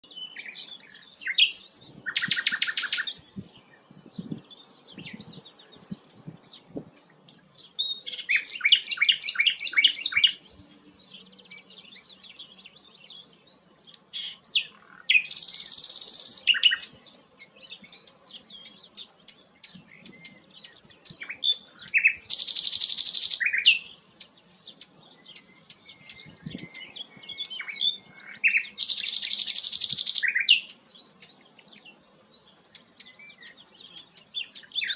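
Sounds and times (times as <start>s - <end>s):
bird chirping and whistling: 0.4s - 3.5s, 4.2s - 6.8s, 7.4s - 10.6s, 14.2s - 17.0s, 19.6s - 30.8s, 32.7s - 34.9s
fast bird trill: 0.5s - 3.4s, 14.2s - 17.3s, 17.9s - 30.8s.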